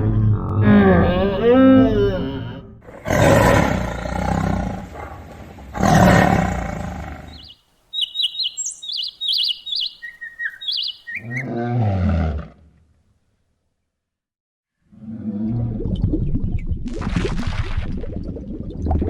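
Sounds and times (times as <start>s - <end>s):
animal roars: 0.0s - 7.4s, 11.2s - 12.7s, 14.9s - 15.9s
low dipping animal call: 6.3s - 11.6s
high chirping calls: 7.3s - 11.4s.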